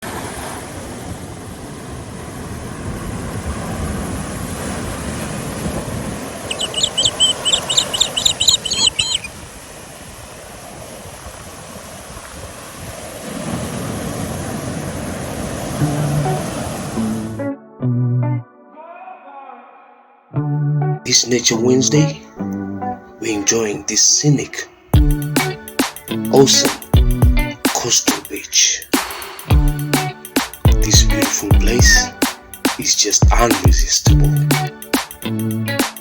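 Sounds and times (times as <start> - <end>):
surf washing onto beach: 0.0 - 17.4
wind on microphone: 1.1 - 17.4
bird chirping: 6.4 - 9.4.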